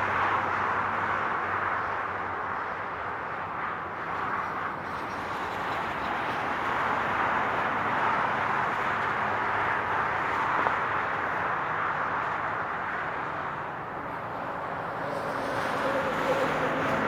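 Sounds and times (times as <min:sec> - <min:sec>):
highway traffic rushing: 0:05.9 - 0:17.0.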